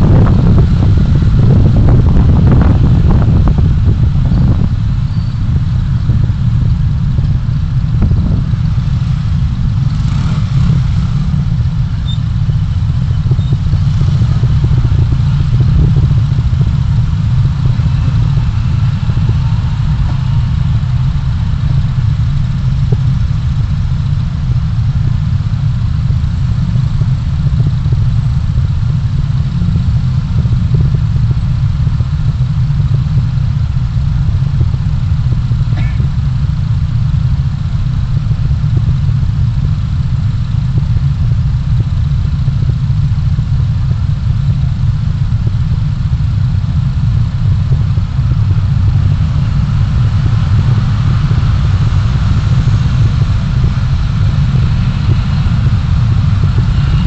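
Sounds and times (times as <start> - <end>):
car cabin engine and road rumble: 0.0 - 57.0.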